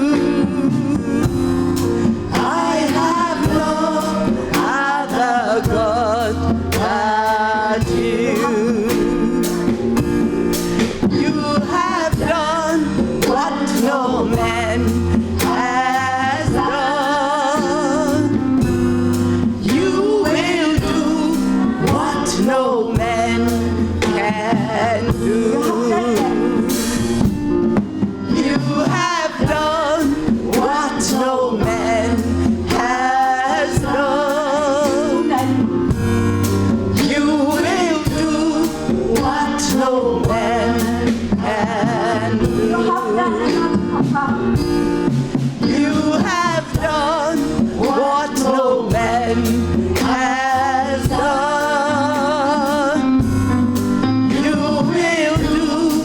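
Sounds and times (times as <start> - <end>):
person singing with vibrato: 0.0 - 27.4, 28.2 - 56.0
band with drums and bass: 0.0 - 56.0.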